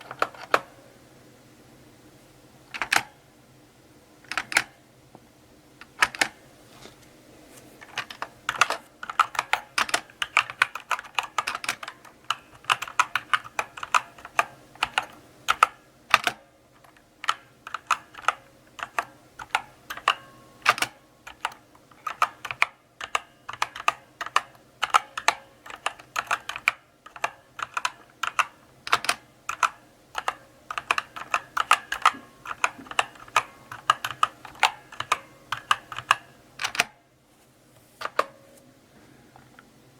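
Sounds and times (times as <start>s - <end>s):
mechanical keyboard key clicks: 4.3s - 4.7s, 5.9s - 6.4s, 8.0s - 37.0s.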